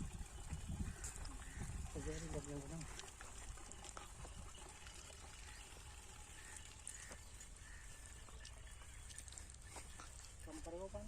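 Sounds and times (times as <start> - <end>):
faint bird chirps: 4.3 - 10.9.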